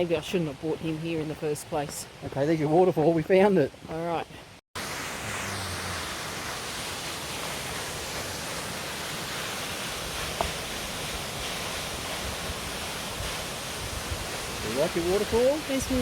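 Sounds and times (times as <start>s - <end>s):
waterfall rushing: 4.8s - 16.0s.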